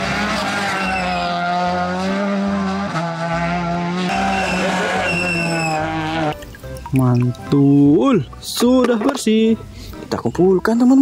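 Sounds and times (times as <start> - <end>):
race car engine drone: 0.0 - 6.4.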